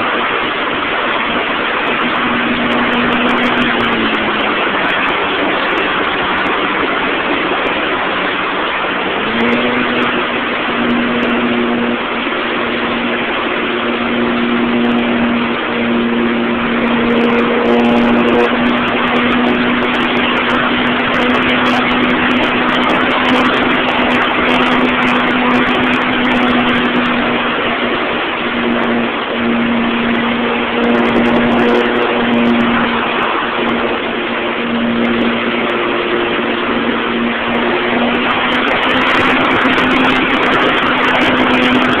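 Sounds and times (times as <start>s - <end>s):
model airplane motor droning: 0.0s - 42.0s
wind rushing across microphone: 0.0s - 42.0s.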